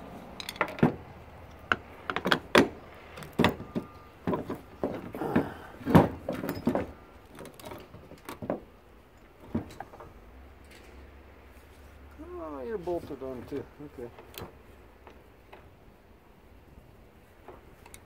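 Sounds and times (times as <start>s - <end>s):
knocks and clanks of parts: 0.4s - 11.1s.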